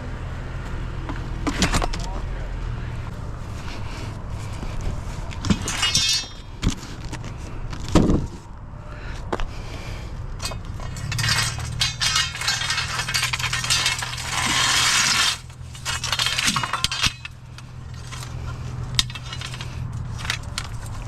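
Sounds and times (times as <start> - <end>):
metal rattling: 5.4 - 7.1, 10.4 - 21.0
scrap metal clinking: 5.4 - 7.1, 10.4 - 21.0.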